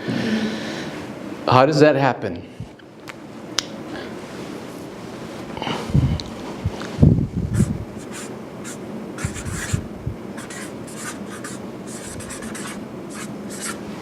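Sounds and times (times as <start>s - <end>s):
pen scratching on paper: 7.6s - 9.8s, 10.4s - 13.8s.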